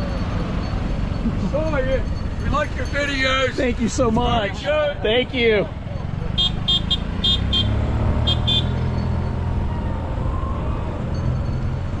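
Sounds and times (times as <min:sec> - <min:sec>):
golf carts rumbling past: 0:00.0 - 0:12.0
golf cart horn beeps: 0:06.4 - 0:08.9.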